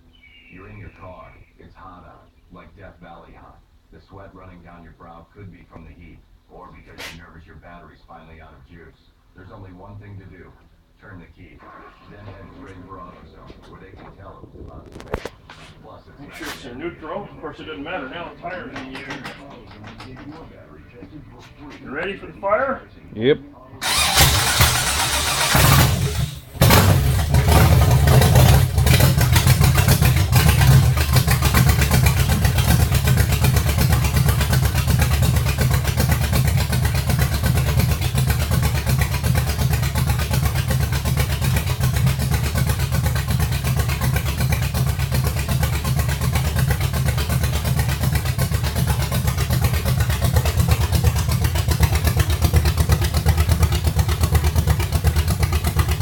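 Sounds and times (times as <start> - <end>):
engine starting and running: 11.0 - 22.4, 23.8 - 56.0.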